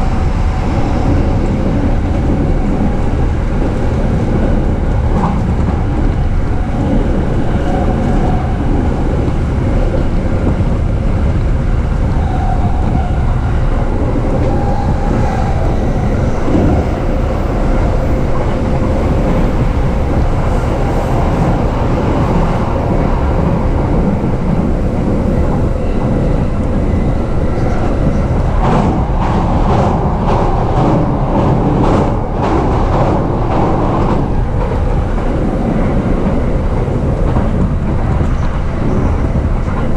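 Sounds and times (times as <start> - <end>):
train interior rumble: 0.0 - 39.9.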